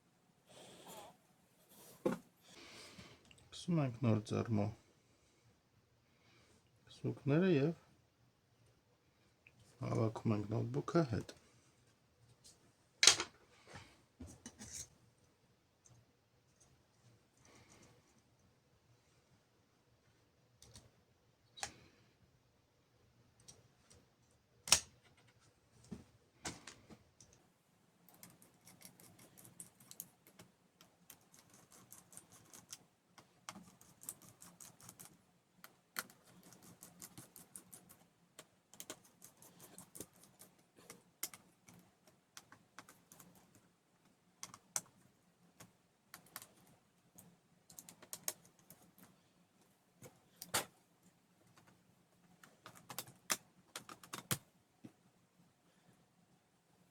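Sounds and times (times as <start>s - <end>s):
laptop parts clicking and tapping: 52.4s - 54.4s.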